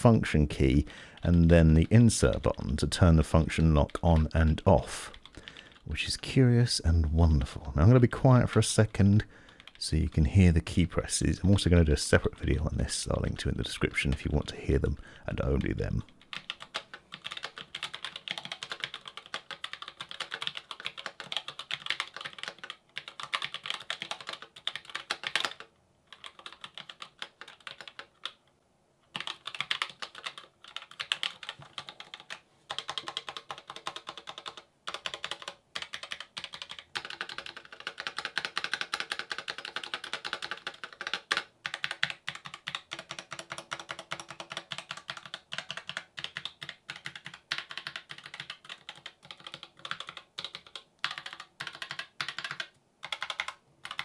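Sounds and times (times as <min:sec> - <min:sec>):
mechanical keyboard typing: 0:09.5 - 0:09.8, 0:15.3 - 0:28.4, 0:29.1 - 0:54.0.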